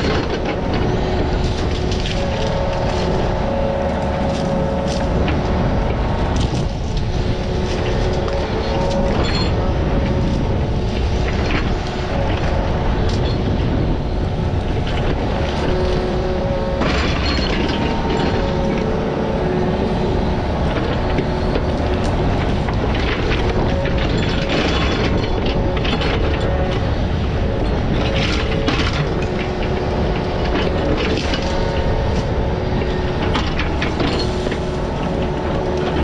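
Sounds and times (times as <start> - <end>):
diesel digging machine running: 0.0 - 36.0
machine clanks: 14.8 - 19.0, 20.6 - 36.0.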